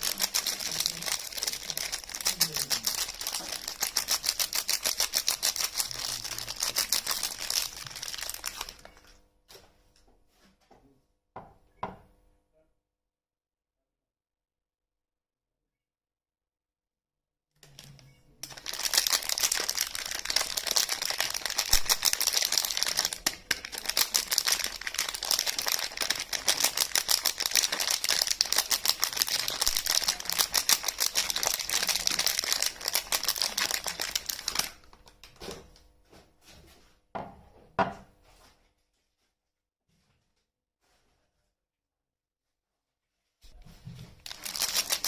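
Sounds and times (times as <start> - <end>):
wrapper crinkling and tearing: 0.0 - 9.0, 17.6 - 35.3, 44.2 - 45.0
packaging rustles: 0.0 - 9.2, 17.6 - 35.4, 43.7 - 45.0.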